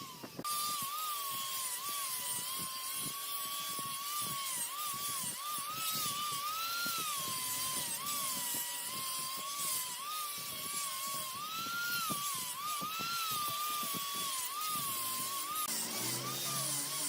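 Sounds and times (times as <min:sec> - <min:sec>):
wood lathe whining: 0:00.0 - 0:17.0.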